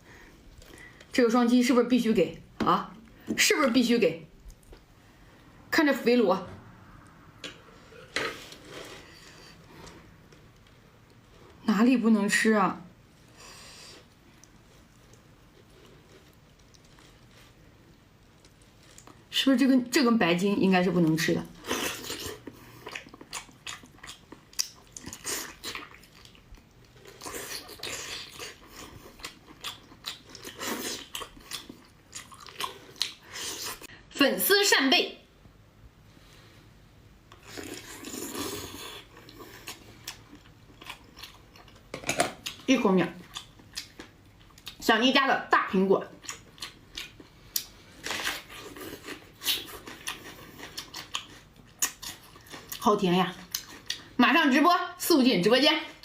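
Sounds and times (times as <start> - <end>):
chewing and biting: 21.6 - 33.8, 46.2 - 52.8.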